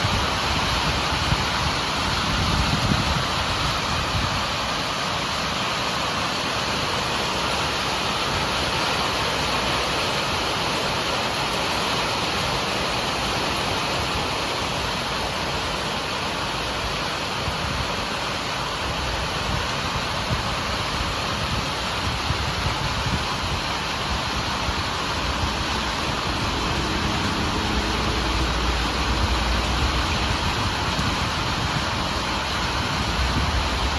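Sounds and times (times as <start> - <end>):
heavy rain: 0.0 - 33.9.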